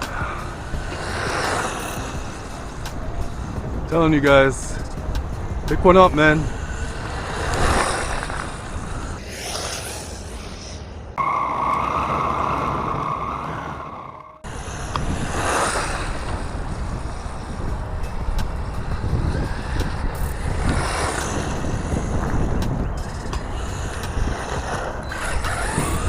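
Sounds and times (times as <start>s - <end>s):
rc car rushing by: 0.0s - 26.0s
electric motor whine: 14.4s - 26.0s.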